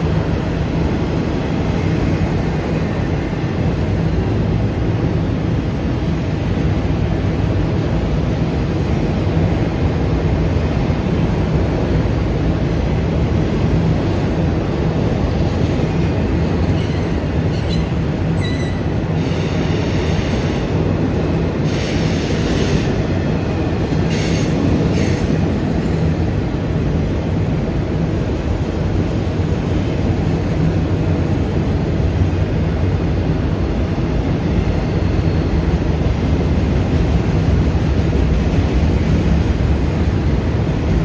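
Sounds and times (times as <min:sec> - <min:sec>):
freight train wheels rumbling: 0:00.0 - 0:41.0
high-pitched wheel squeals: 0:16.7 - 0:19.6.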